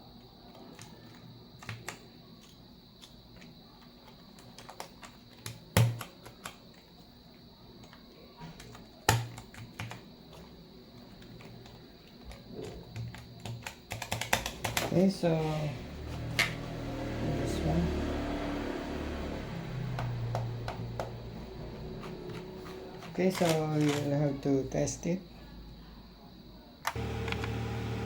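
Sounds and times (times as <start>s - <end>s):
mechanical keyboard clicks: 4.0s - 6.6s, 11.3s - 14.9s
loud keyboard clacks: 12.9s - 14.9s.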